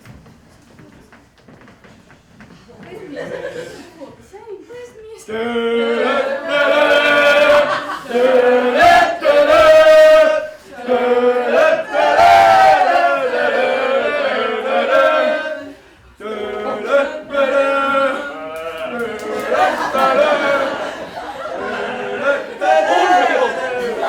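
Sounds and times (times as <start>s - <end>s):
voices singing long held notes: 5.3s - 24.0s.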